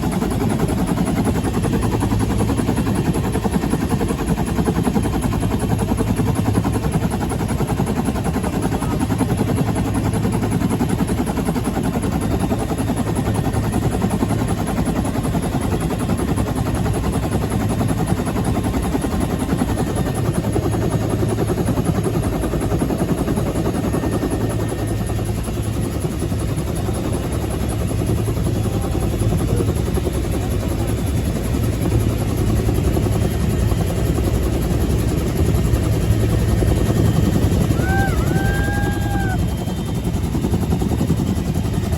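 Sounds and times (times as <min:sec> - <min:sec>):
turbine drone: 0:27.5 - 0:41.5.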